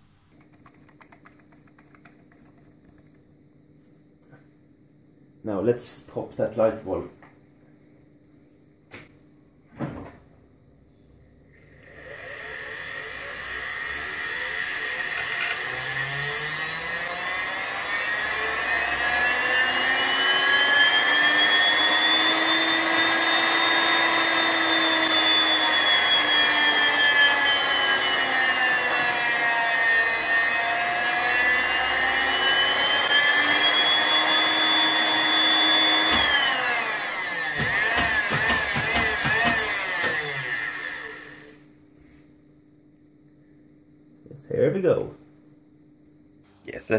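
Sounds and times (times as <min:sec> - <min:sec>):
sewing machine motor whine: 0:11.6 - 0:41.6.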